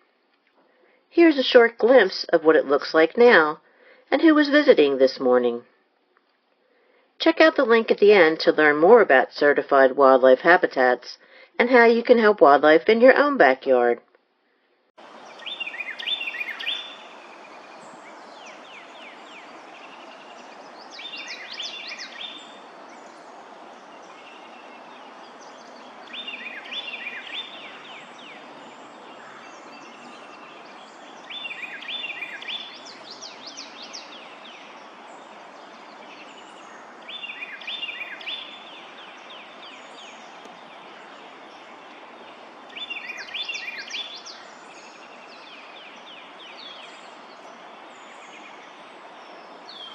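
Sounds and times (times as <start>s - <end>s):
background hiss: 15.0s - 49.9s
songbird singing: 15.0s - 49.9s.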